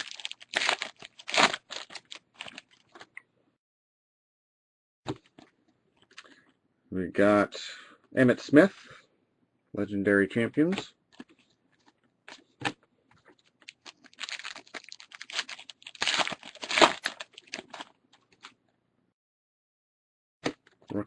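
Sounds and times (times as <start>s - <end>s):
foil wrapper crinkling: 0.0s - 3.1s, 13.3s - 18.5s.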